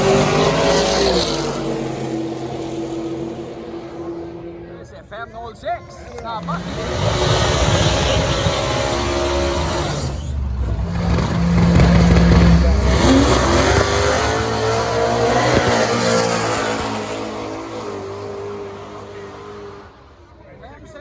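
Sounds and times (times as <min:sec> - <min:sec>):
race car engine at full throttle: 0:00.0 - 0:20.4.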